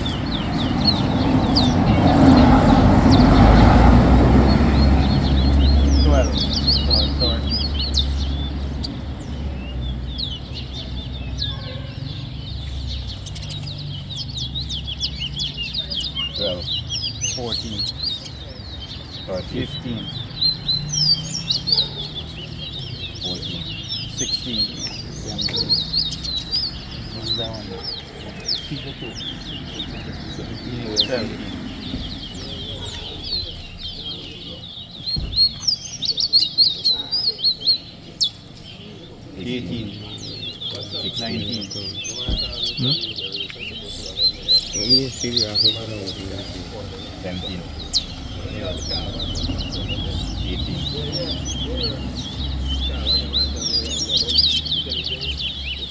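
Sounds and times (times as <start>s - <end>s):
songbird chirping and whistling: 4.5s - 55.9s
low thud: 35.1s - 35.6s, 42.2s - 42.8s.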